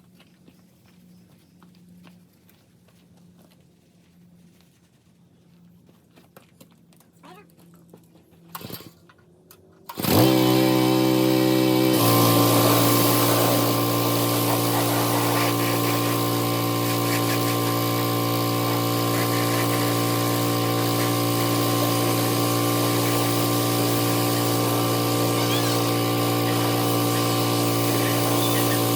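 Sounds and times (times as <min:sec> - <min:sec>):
small engine running: 0:07.5 - 0:28.9.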